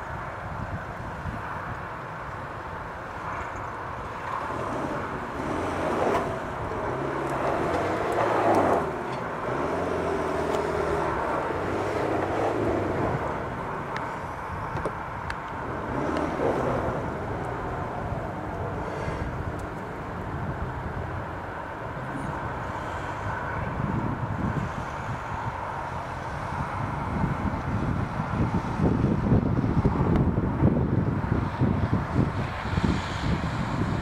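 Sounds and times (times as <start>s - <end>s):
off-road engines revving: 3.2s - 29.9s.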